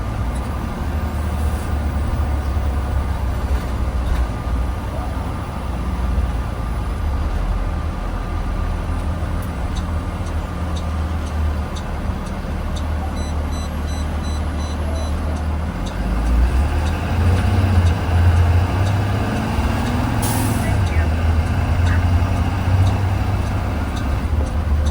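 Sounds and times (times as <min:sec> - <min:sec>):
bus engine droning: 0:00.0 - 0:24.9
faint regular ticking: 0:09.0 - 0:24.9.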